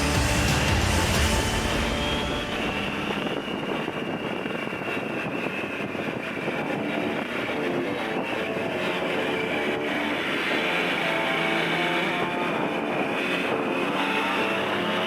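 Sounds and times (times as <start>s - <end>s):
motorcycle engine running: 0.0s - 3.9s.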